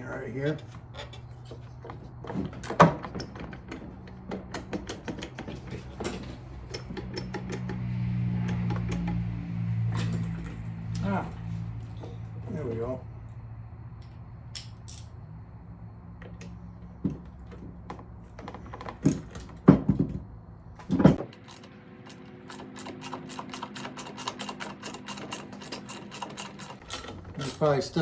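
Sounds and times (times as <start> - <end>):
hand tools clattering on metal: 21.0 - 28.0
ratchet clicking: 21.2 - 27.7.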